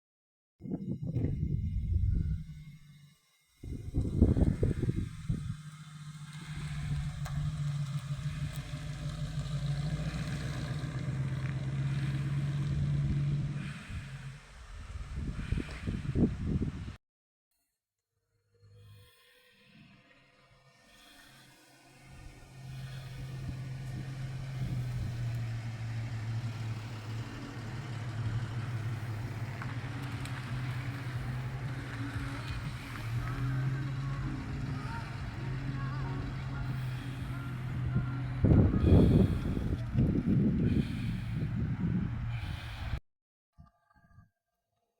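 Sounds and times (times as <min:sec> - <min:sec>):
car engine running: 0:03.7 - 0:16.8, 0:22.0 - 0:43.0.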